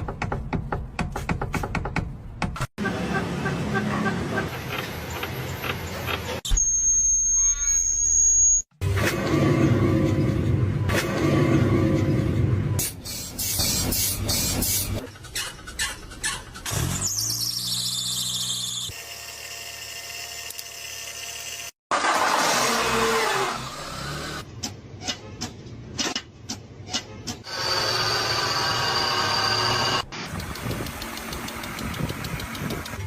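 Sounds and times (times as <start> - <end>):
engine squeal: 2.8 - 8.7, 12.1 - 19.0
rapid engine clicks or knocks: 30.3 - 33.0.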